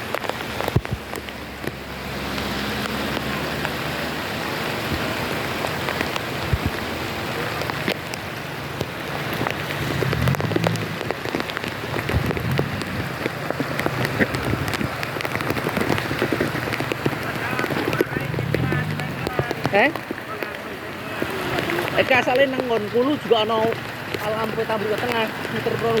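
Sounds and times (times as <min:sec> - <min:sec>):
heavy rain hissing: 0:00.0 - 0:26.0
sharp raindrop impacts: 0:00.0 - 0:26.0
low rumble: 0:09.3 - 0:15.8.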